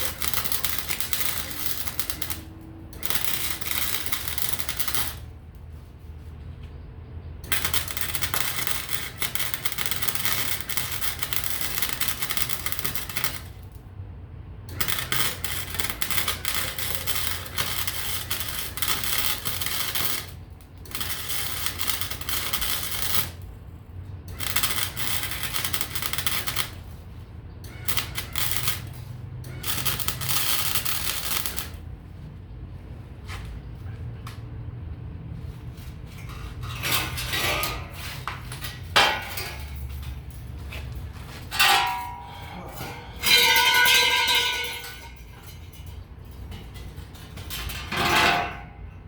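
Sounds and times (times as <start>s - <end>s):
electric arc welding crackling: 0.0s - 5.4s, 7.4s - 13.8s, 14.6s - 23.5s, 24.3s - 27.1s, 27.7s - 31.8s.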